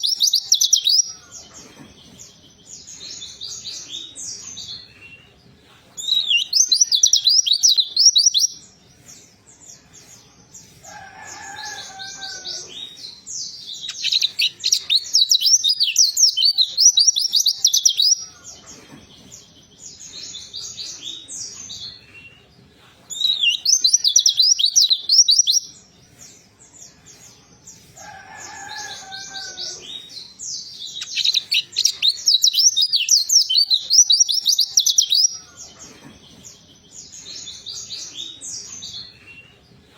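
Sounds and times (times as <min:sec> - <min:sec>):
bird twittering and warbling: 0:10.8 - 0:19.6, 0:28.0 - 0:38.9.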